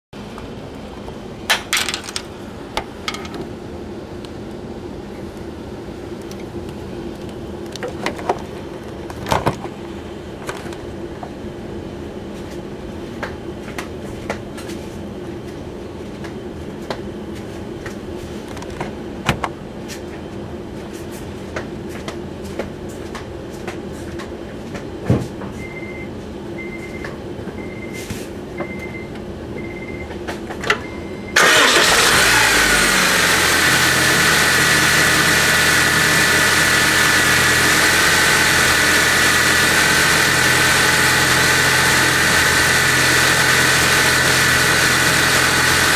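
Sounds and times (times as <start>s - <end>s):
car engine starting and idling: 31.3s - 45.9s
high-pitched engine whine: 31.4s - 45.9s.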